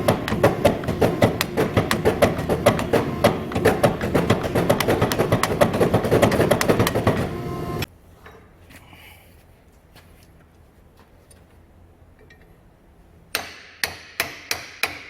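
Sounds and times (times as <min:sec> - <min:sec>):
hammer striking hot steel: 0:00.0 - 0:07.9, 0:13.3 - 0:15.0.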